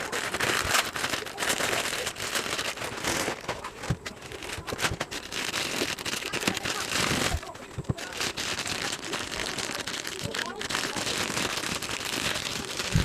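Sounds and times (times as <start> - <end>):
plastic packaging crackling: 0.0 - 13.0.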